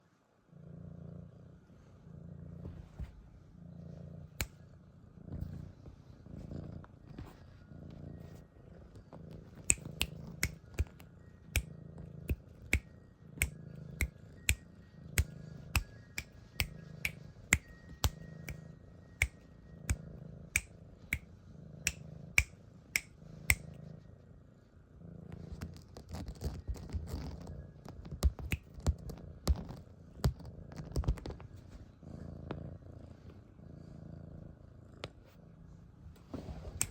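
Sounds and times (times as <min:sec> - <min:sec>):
kitten purring: 0:00.5 - 0:36.9.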